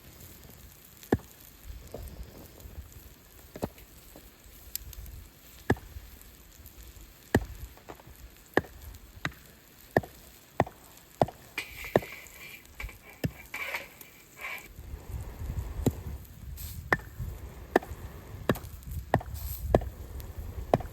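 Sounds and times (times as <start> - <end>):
blade chopping wood: 1.0 - 1.4, 5.6 - 5.9, 7.3 - 14.0, 16.8 - 19.9, 20.7 - 20.9.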